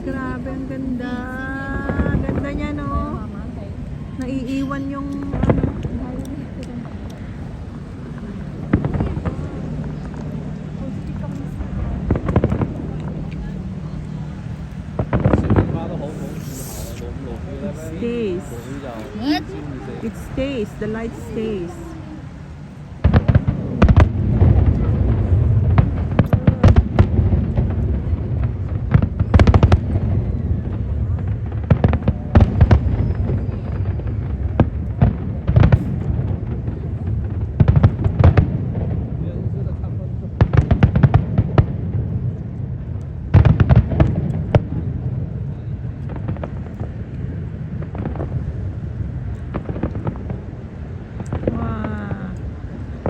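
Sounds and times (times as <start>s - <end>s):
steady low rumble: 0.0s - 53.0s
rapid fireworks cracks: 4.6s - 19.2s, 22.4s - 53.0s
fireworks bursting: 6.8s - 39.2s, 43.3s - 53.0s.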